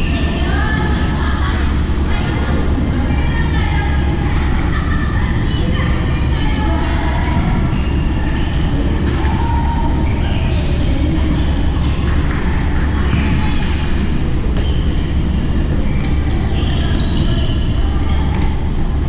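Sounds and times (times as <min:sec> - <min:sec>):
low hum: 0:00.0 - 0:19.0
shoes squeaking on court floor: 0:10.0 - 0:18.1.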